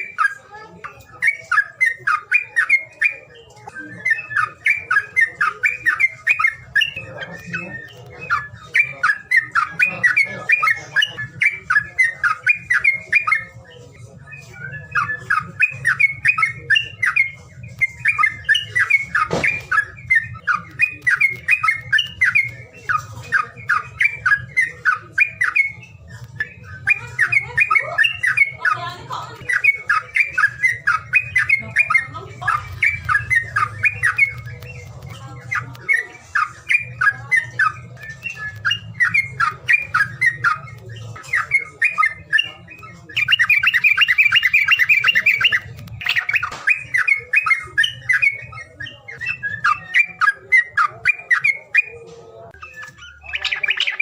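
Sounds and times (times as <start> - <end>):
songbird chattering song: 0.0 - 54.0.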